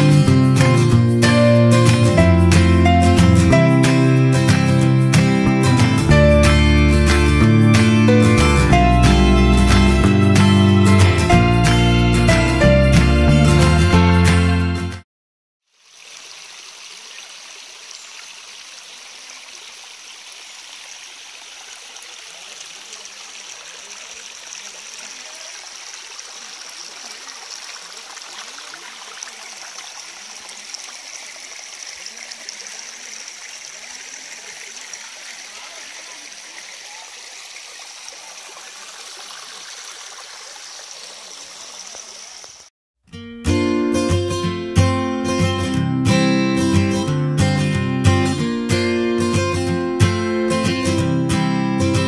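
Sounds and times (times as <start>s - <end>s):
stream trickling over rocks: 15.6s - 42.7s.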